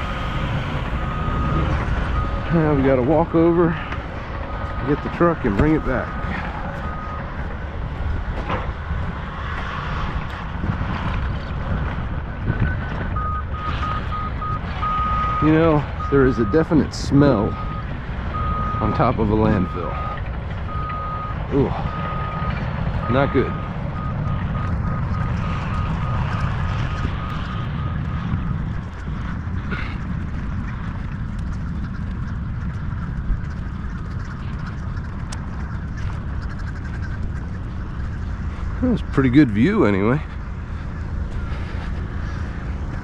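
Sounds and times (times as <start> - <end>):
backup alarm beeping: 0.0 - 7.5, 12.5 - 16.7, 17.3 - 28.6
heavy machinery engine rumbling: 0.0 - 43.0
wind buffeting microphone: 0.0 - 43.0.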